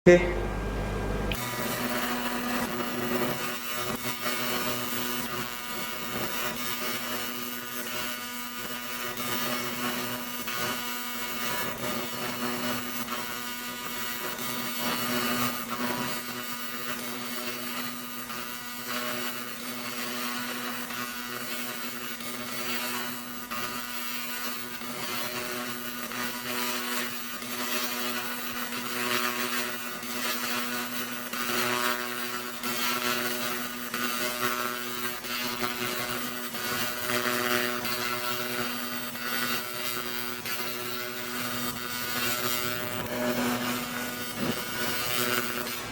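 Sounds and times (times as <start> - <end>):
machine humming: 0.1 - 3.5, 40.1 - 45.9
laser crackling hiss on paint: 1.3 - 45.9.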